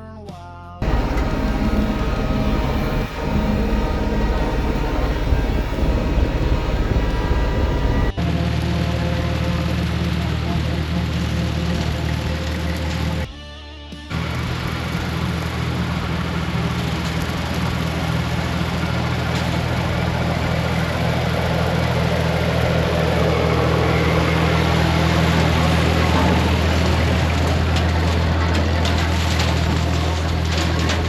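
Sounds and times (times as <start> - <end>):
broad rushing noise: 0.8 - 8.2
tractor engine running: 0.8 - 13.3, 14.1 - 31.0.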